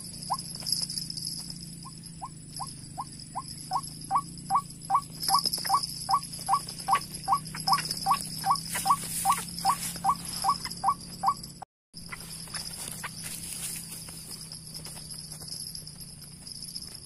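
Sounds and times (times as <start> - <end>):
insects shrilling: 0.0 - 15.8
bird call rising notes: 1.8 - 11.4.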